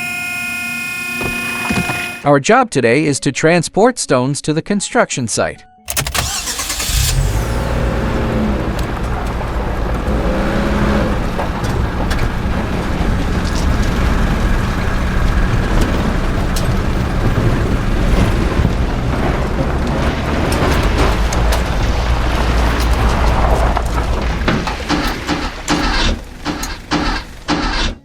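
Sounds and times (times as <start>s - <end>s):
truck engine rumbling: 5.9s - 28.0s.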